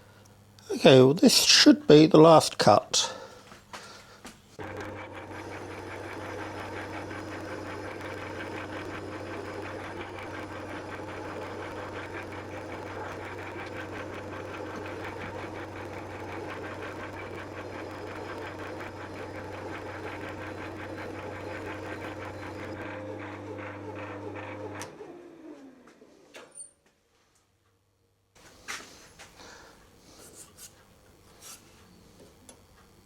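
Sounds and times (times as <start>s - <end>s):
lathe running with fast ticking: 4.6s - 25.1s.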